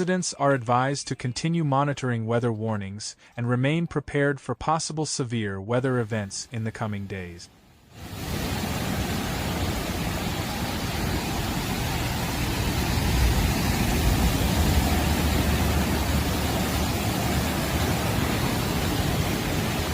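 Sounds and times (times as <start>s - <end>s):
heavy rain: 7.9s - 19.9s
wind buffeting microphone: 8.1s - 19.9s.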